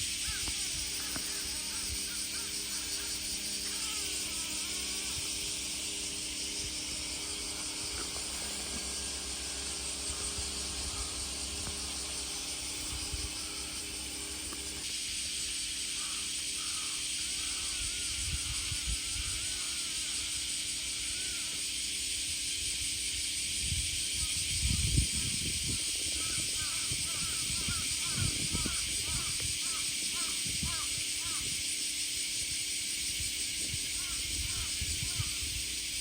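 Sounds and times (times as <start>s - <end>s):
wind rumble on microphone: 0.0s - 14.8s, 17.4s - 20.3s, 22.2s - 31.7s, 32.4s - 36.0s
small birds chirping: 0.0s - 14.9s, 24.2s - 31.7s
insects droning: 0.0s - 36.0s.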